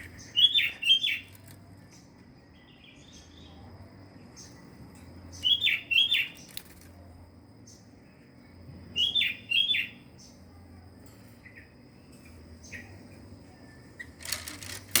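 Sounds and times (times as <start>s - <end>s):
birds chirping: 0.0s - 10.5s
brief rustle: 14.2s - 15.0s.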